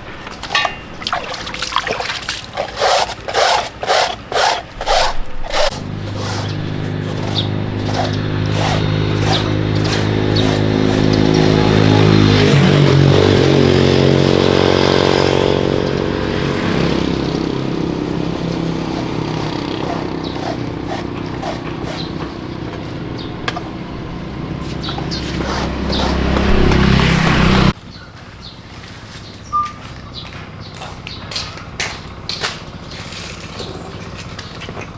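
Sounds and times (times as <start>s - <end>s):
motor humming: 2.4s - 27.8s.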